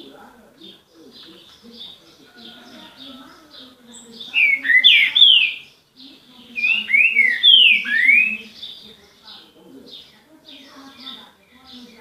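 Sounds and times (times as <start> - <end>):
faint bird chirps: 0.6 - 12.0
songbird whistling song: 3.9 - 5.8, 6.5 - 9.4.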